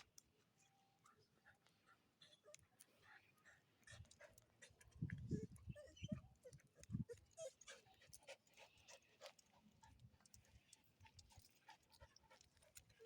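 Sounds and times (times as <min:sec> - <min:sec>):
dog panting: 0:01.4 - 0:05.6, 0:06.8 - 0:13.0
dog whimpering: 0:05.3 - 0:07.9.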